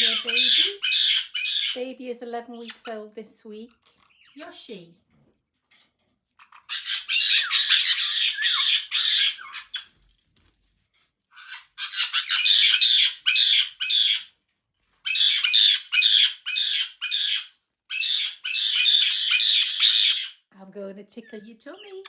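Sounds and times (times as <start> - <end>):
parrot squawking: 0.0 - 1.8, 3.9 - 4.5, 6.4 - 9.9, 11.3 - 14.3, 15.1 - 20.5.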